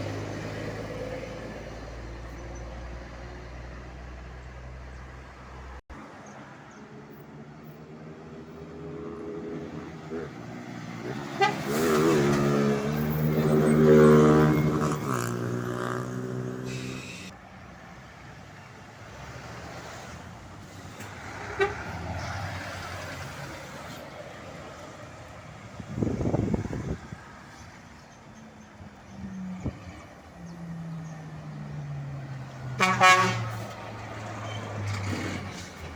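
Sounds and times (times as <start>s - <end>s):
truck driving past: 8.1s - 17.3s
truck horn: 11.0s - 17.3s, 21.4s - 22.1s, 32.6s - 33.8s.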